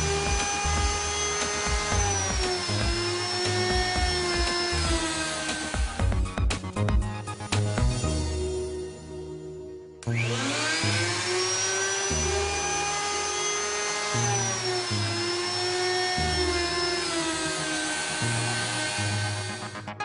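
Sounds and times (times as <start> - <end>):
router motor whining: 0.0 - 8.0, 10.0 - 20.0
music with bass beat: 0.0 - 9.2.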